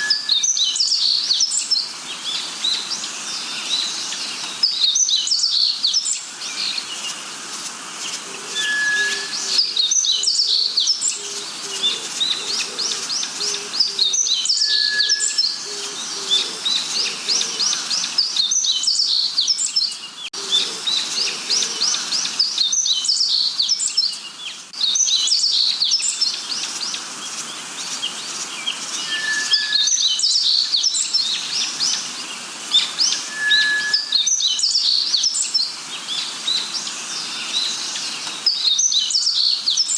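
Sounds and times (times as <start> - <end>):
many birds chirping: 0.0 - 39.9
short steady whistle: 33.3 - 34.2.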